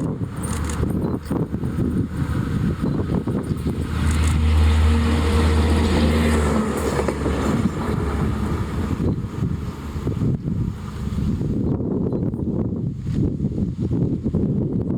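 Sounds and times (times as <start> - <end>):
diesel engine drone: 0.0 - 11.8.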